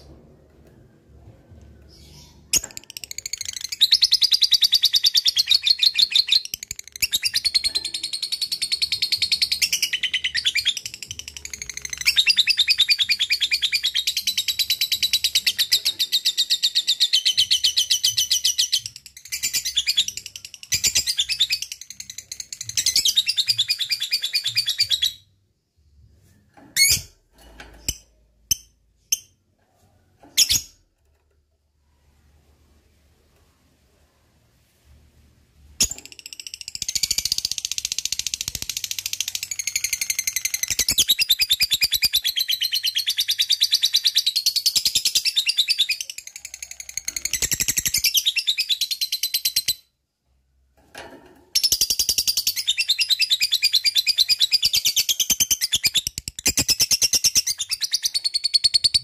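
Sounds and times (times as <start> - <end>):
bird chirps: 1.6 - 25.3.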